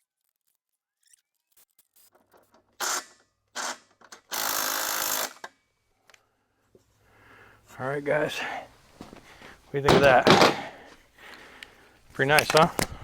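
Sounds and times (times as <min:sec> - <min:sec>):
power tool bursts: 0:02.8 - 0:05.5, 0:09.9 - 0:10.8
light handling clicks: 0:12.3 - 0:13.0.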